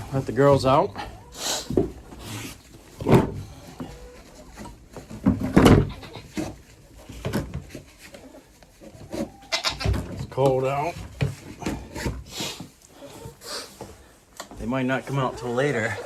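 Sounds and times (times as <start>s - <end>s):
knocks and thumps on coop door: 5.2s - 6.0s.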